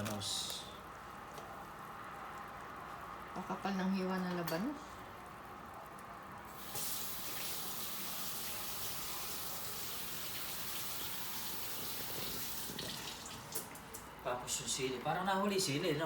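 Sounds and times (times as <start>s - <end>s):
kitchen faucet running water: 6.5s - 13.7s.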